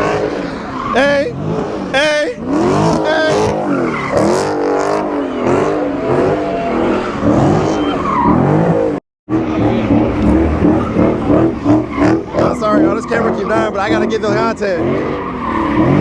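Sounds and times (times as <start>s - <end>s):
tyre squeal: 0.0s - 4.5s, 5.2s - 8.4s
car engine revving hard: 0.0s - 16.0s.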